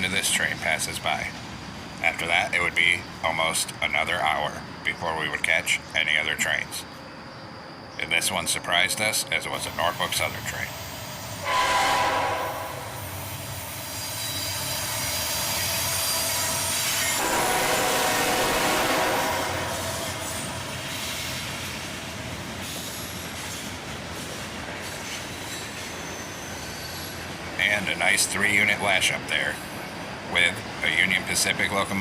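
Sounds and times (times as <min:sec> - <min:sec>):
diesel locomotives passing: 0:00.0 - 0:32.0
rail noise: 0:00.0 - 0:32.0
train horn blast: 0:11.4 - 0:13.2, 0:17.2 - 0:20.5
wheel squeal: 0:13.1 - 0:17.9, 0:22.6 - 0:27.3.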